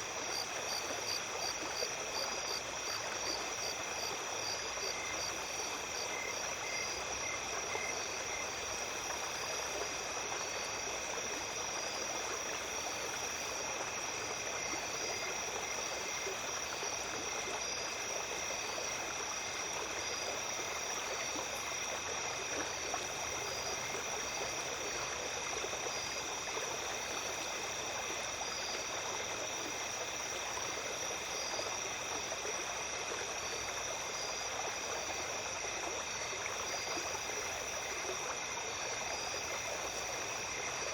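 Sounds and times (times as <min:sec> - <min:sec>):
insects chirping: 0:00.0 - 0:40.9
stream flowing over stones: 0:00.0 - 0:40.9.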